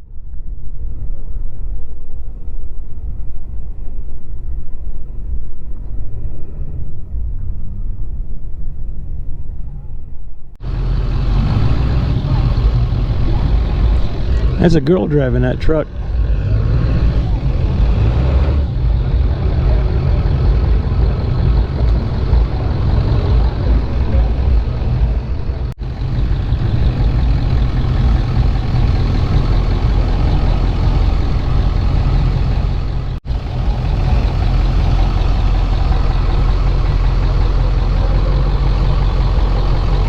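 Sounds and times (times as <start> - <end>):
truck engines rumbling: 10.6 - 40.0.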